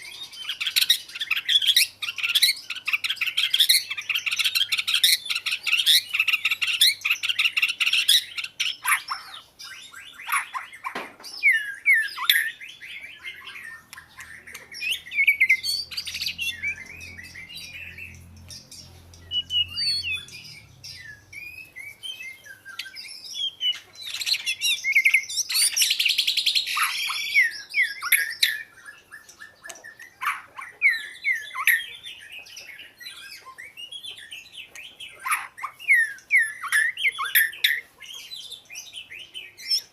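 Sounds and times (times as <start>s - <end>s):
rapid bird chattering: 0.0s - 21.7s
bird singing whistled notes: 0.0s - 39.9s
harsh scratchy bird calls: 0.0s - 39.9s.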